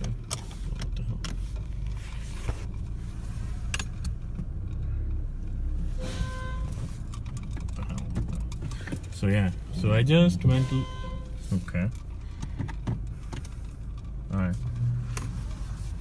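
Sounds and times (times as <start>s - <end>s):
car engine idling: 0.0s - 16.0s
short beep: 6.0s - 6.8s, 10.4s - 11.4s.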